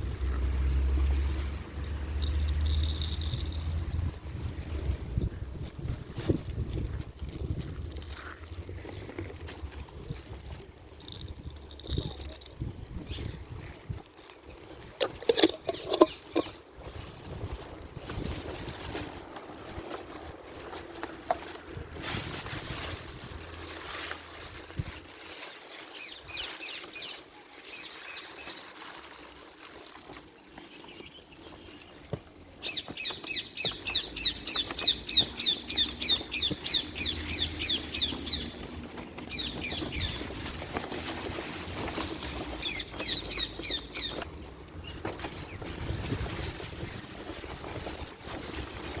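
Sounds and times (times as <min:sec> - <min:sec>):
bird chirping: 0:32.6 - 0:40.3, 0:42.6 - 0:44.2.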